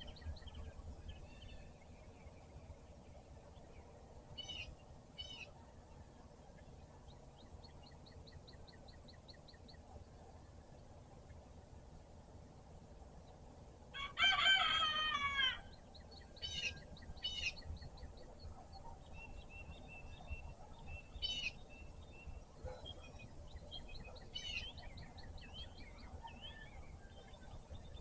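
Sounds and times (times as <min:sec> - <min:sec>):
songbirds chirping: 0:00.0 - 0:28.0
rooster crowing: 0:13.9 - 0:15.7.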